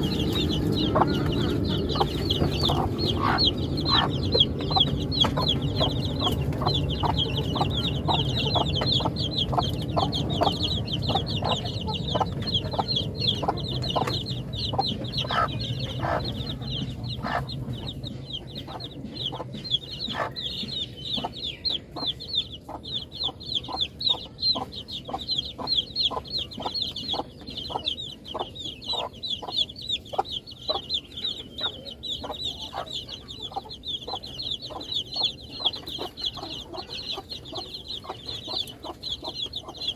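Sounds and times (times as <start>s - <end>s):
chicks peeping: 0.0s - 39.9s
low background rumble: 0.0s - 39.9s.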